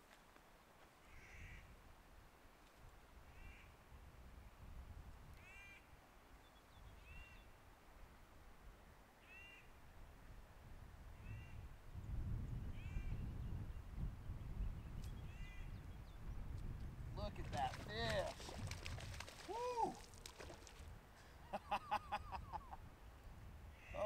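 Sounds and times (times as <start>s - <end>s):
bird crow-like calls: 1.0s - 1.6s, 3.3s - 3.7s, 5.4s - 5.9s, 23.8s - 24.0s.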